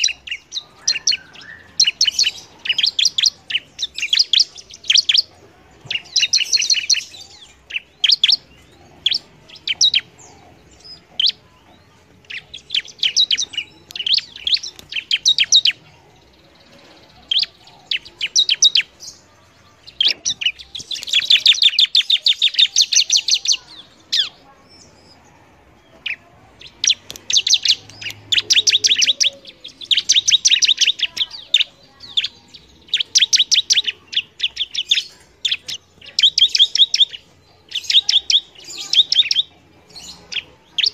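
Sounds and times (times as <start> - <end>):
bird singing high-pitched chirps: 0.0 - 25.2, 25.8 - 40.9.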